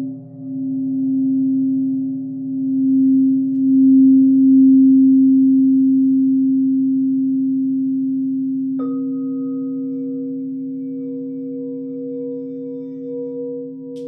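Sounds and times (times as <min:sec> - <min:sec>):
crystal singing bowl ringing: 0:00.0 - 0:14.0.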